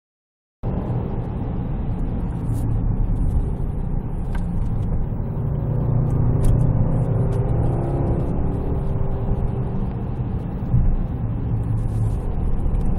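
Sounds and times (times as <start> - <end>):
car driving low rumble: 0.6 - 12.9.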